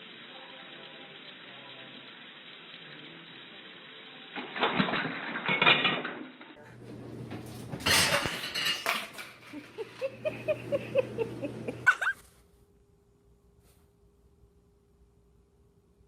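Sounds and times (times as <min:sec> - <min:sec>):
clattering and knocking: 0:07.2 - 0:09.8.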